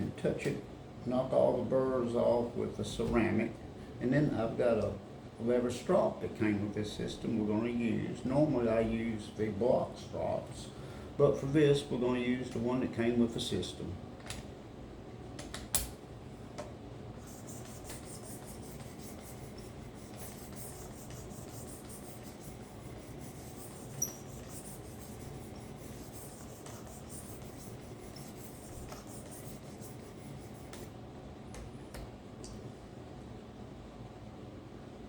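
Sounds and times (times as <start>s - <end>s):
blade rubbing on leather strop: 17.4s - 30.9s.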